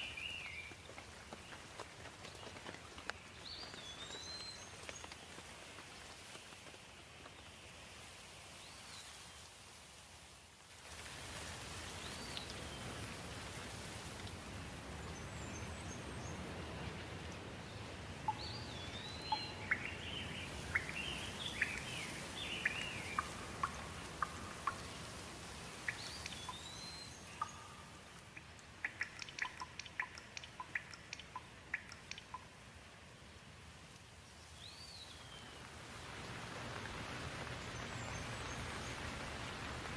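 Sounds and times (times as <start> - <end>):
rushing water: 7.6 - 39.9
birds singing: 15.1 - 25.1, 25.9 - 28.2.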